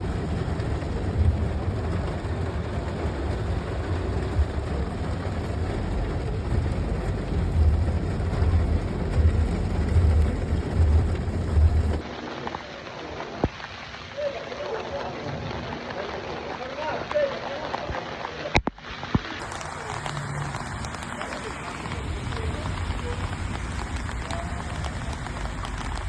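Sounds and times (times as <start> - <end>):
wind buffeting microphone: 0.0 - 12.0
rain falling: 0.0 - 26.0.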